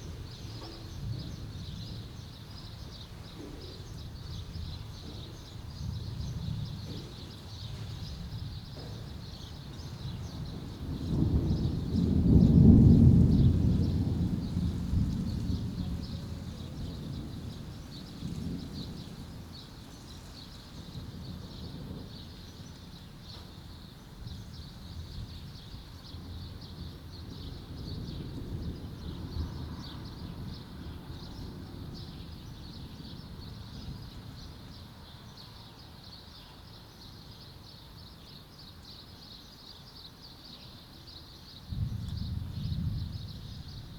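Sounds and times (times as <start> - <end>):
distant thunder rumbling: 3.1 - 20.0, 41.7 - 43.9
small birds chirping: 15.3 - 43.9.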